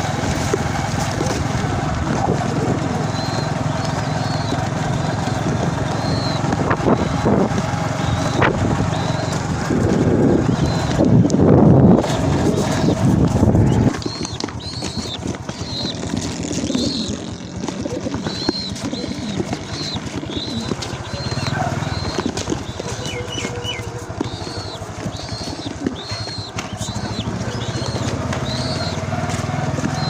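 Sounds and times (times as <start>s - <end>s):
heavy low rumble: 0.0s - 29.7s
small bird chirping: 3.0s - 9.4s, 10.5s - 11.1s, 13.7s - 29.0s.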